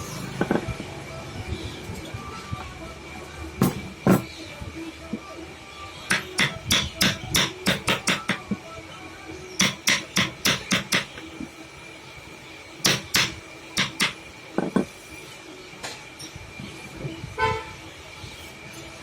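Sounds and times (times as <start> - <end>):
hammer blows on wood: 6.1 - 8.6, 9.6 - 11.2, 12.8 - 14.2.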